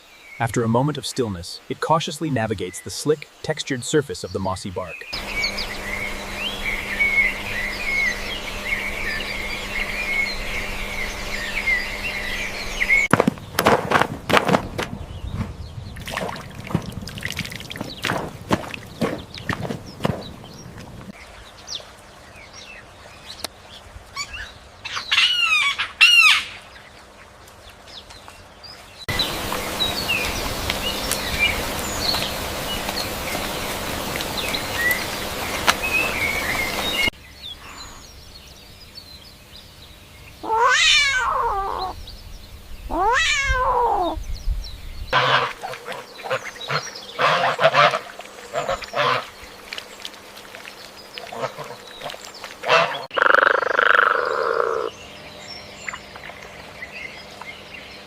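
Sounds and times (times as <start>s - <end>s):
steady noise: 5.2s - 13.2s
cat meowing: 40.4s - 42.0s, 42.9s - 44.2s.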